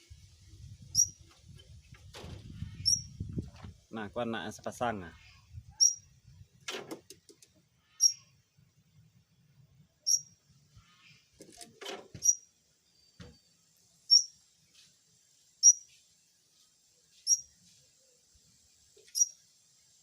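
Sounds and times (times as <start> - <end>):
bird chirping: 0.8 - 2.0, 2.6 - 3.2, 5.2 - 6.2, 7.8 - 11.4, 12.2 - 14.9, 15.6 - 16.0, 17.0 - 20.0.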